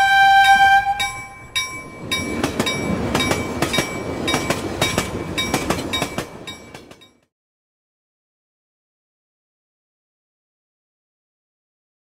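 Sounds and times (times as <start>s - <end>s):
train rumbling past: 0.0s - 7.3s
chime ringing: 0.4s - 6.9s
wheels clacking over rail joints: 0.5s - 7.2s.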